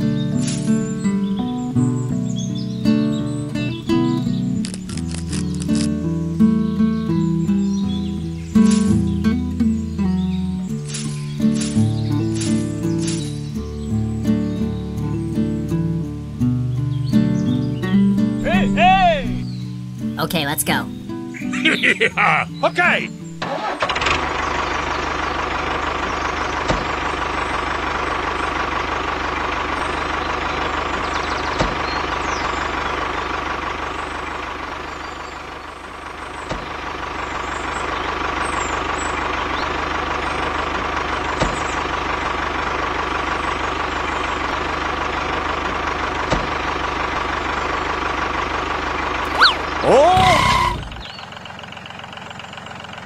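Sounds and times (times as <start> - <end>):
diesel tractor engine chugging: 0.0 - 16.4, 17.0 - 53.0.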